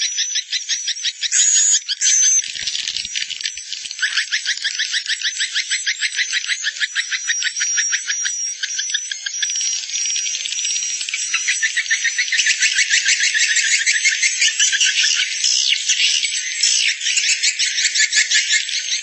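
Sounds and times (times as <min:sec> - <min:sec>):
thin steady high tone: 0:01.3 - 0:02.5.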